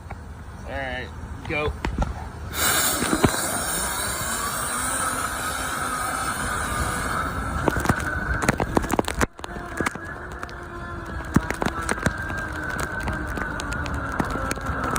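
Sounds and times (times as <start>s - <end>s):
rushing air hiss: 2.4s - 7.8s
blower motor whining: 2.4s - 14.9s
sharp clicks and knocks: 7.6s - 10.5s.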